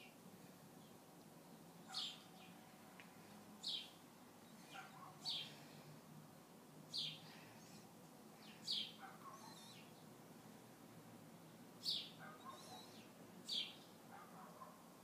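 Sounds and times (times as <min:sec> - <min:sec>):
small bird chirping: 0:00.8 - 0:02.6, 0:03.6 - 0:05.6, 0:06.9 - 0:10.1, 0:11.8 - 0:14.0.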